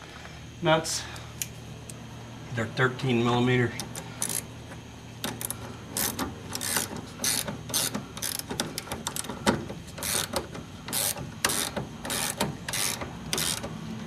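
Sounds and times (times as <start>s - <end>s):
ratchet wrench clicking: 3.8s - 4.5s, 5.2s - 13.8s.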